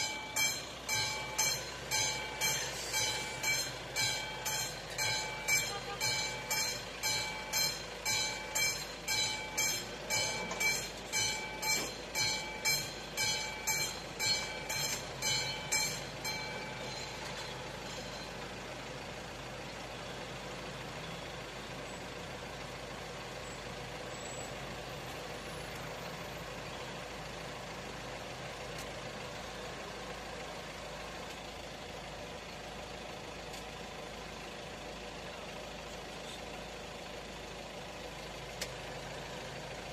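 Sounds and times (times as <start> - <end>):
level crossing bell ringing: 0.0 - 18.4
road traffic and engine noise: 0.0 - 39.9.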